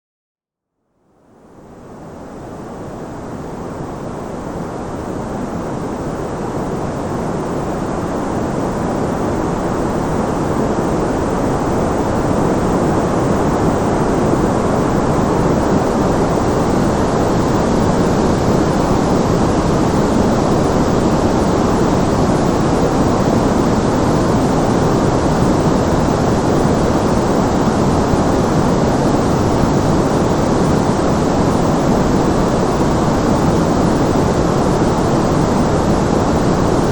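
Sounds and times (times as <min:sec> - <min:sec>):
white noise hiss: 0:00.8 - 0:36.9.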